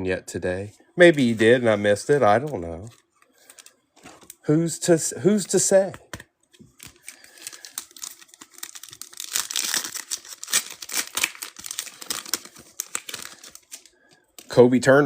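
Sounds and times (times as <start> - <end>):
cards clicking and crackling: 5.4 - 14.6
wrapper crinkling and tearing: 6.7 - 14.6.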